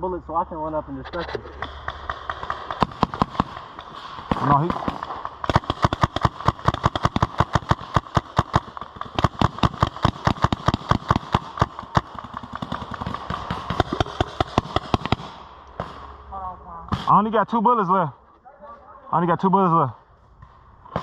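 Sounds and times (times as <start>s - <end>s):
paintball marker firing rapidly: 1.6s - 16.0s.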